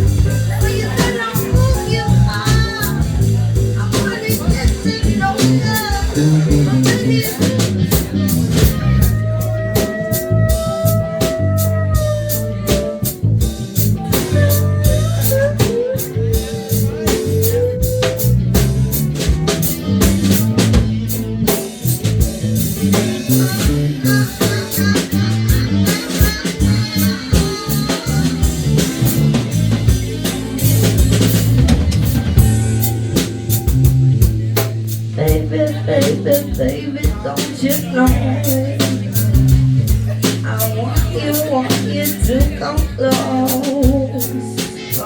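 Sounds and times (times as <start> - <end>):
blues-rock band playing: 0.0 - 45.0
electric guitar solo: 14.2 - 18.4.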